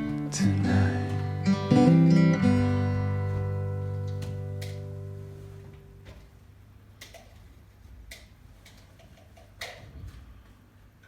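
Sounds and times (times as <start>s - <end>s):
strummed acoustic guitar: 0.0s - 6.0s.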